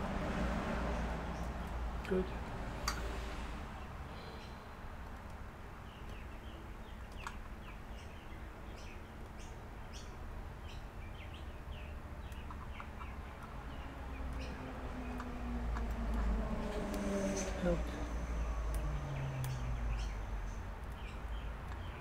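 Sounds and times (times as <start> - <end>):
small birds chirping: 0.9 - 22.0
faint clicks: 18.6 - 19.7.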